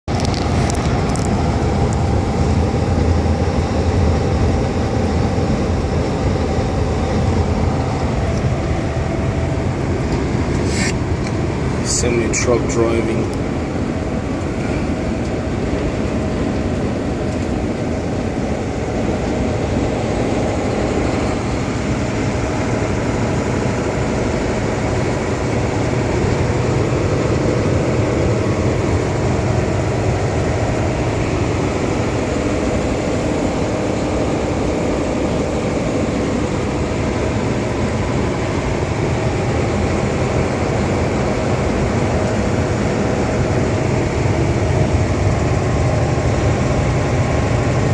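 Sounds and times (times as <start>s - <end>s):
road noise: 0.0s - 47.9s
truck engine drone: 0.0s - 47.9s.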